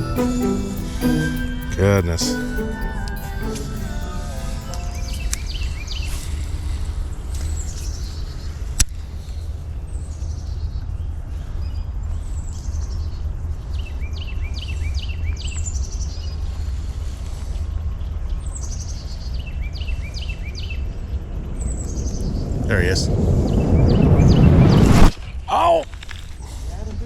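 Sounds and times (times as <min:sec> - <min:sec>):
low rumble: 0:19.4 - 0:25.2.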